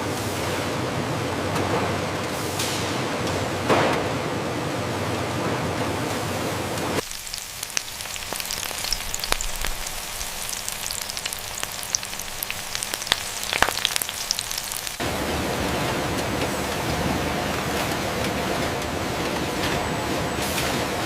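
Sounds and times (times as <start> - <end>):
hot oil sizzling and popping: 7.0 - 15.1.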